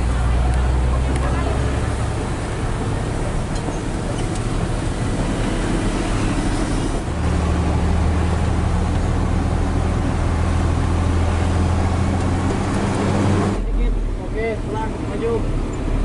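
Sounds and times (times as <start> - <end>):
road noise inside cab: 0.0 - 16.0
truck diesel engine: 0.0 - 16.0.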